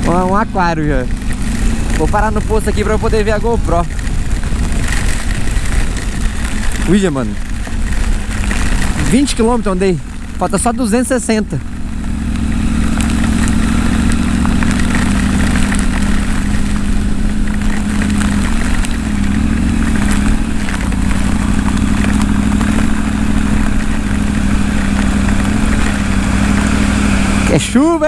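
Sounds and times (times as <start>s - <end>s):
heavy rain: 0.0s - 28.0s
motorcycle engine running: 0.0s - 28.0s
wind noise on microphone: 1.0s - 9.8s.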